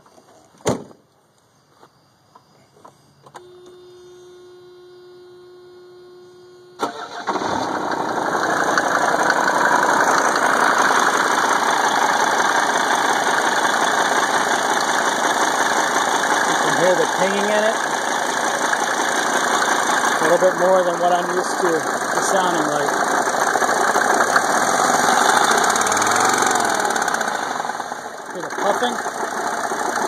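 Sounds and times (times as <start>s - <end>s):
steady electrical tone: 1.3s - 6.8s
pinging in engine idle: 3.2s - 30.0s
diesel engine cranking and idling: 6.8s - 30.0s.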